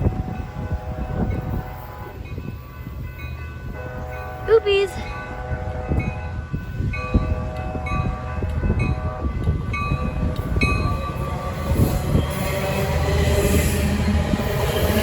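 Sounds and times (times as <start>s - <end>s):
multi-tone train horn: 0.0s - 2.2s, 3.8s - 15.0s
train wheels clattering on rails: 5.3s - 15.0s.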